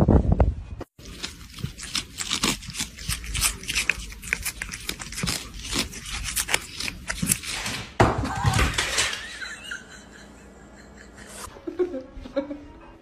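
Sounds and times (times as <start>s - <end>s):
cats licking: 0.9s - 7.6s.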